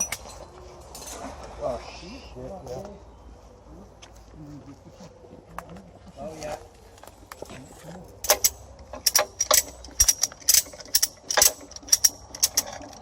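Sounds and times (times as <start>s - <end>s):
metal mechanism clicking: 8.2s - 13.0s.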